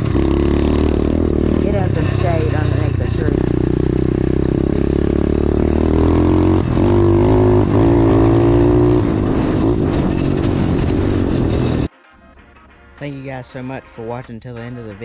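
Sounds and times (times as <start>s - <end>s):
dirt bike engine revving: 0.0s - 11.9s.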